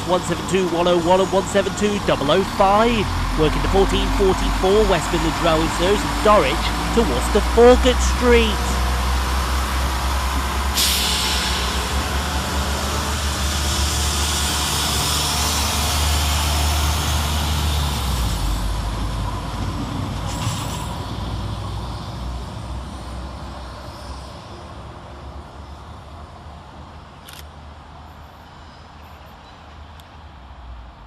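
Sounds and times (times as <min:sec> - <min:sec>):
diesel train engine rumble: 0:00.0 - 0:31.0
hiss: 0:10.8 - 0:12.6.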